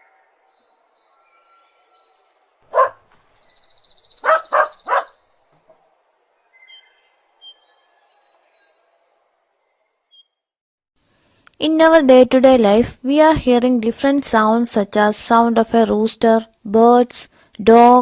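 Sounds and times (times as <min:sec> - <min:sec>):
faint bird chirps: 0:00.0 - 0:10.6
dog barking: 0:02.7 - 0:03.2, 0:04.2 - 0:05.2.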